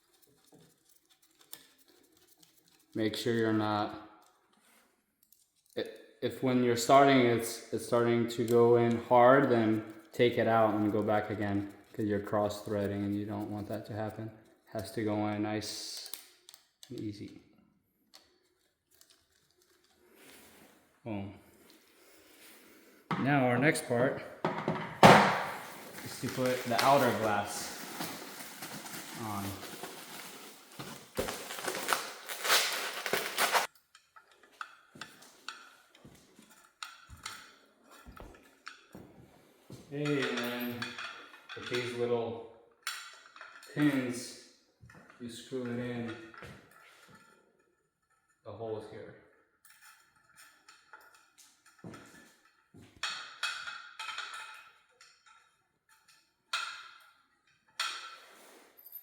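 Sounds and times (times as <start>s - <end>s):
rustling scrape: 25.5s - 33.7s, 58.1s - 58.9s
glass and metal parts clinking: 40.0s - 42.0s.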